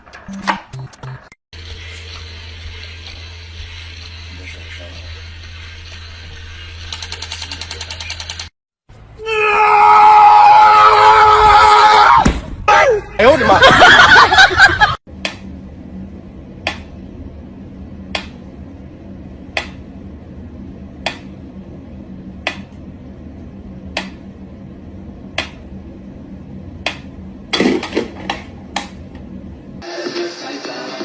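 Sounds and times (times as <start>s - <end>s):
steady low hum: 0.8s - 8.2s, 13.0s - 29.8s
sharp clicks: 6.9s - 8.5s.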